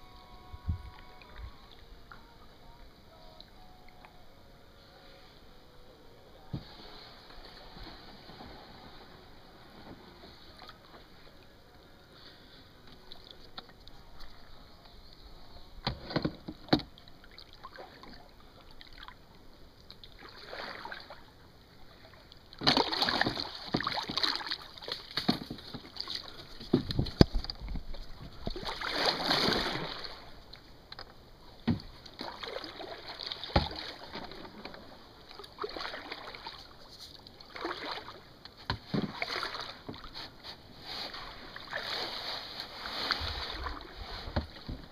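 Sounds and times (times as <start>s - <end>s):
paddle splashing in water: 20.1s - 21.3s, 21.9s - 30.7s, 31.6s - 44.9s.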